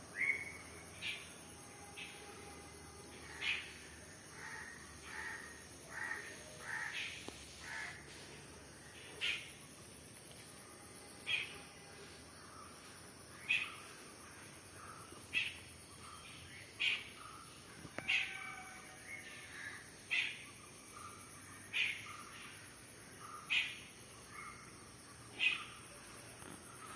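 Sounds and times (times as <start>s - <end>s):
faint high-pitched hiss: 0.0s - 26.9s
bird calling: 25.3s - 25.9s.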